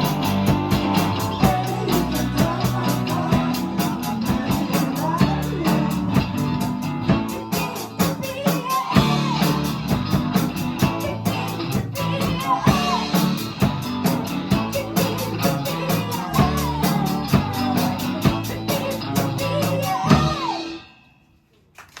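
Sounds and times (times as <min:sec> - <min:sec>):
rock band playing live: 0:00.0 - 0:20.9.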